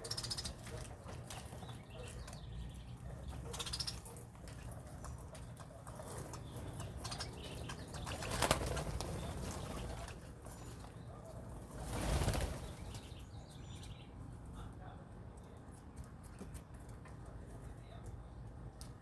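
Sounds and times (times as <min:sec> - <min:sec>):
birds flapping wings: 0:07.1 - 0:10.8, 0:11.6 - 0:13.1.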